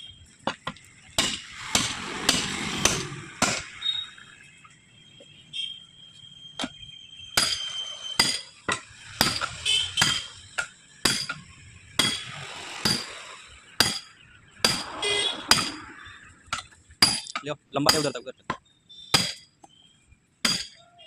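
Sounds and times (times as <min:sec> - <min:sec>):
hammer blows ringing on steel: 0:06.6 - 0:11.4, 0:12.0 - 0:13.2, 0:13.8 - 0:16.0, 0:17.0 - 0:18.3, 0:19.1 - 0:19.5, 0:20.4 - 0:21.0.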